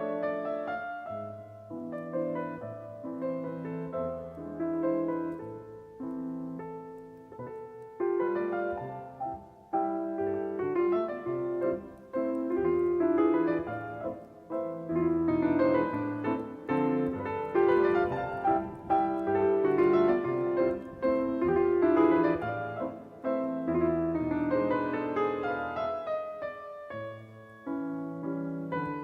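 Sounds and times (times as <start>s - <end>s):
piano melody over chords: 0.0s - 29.0s.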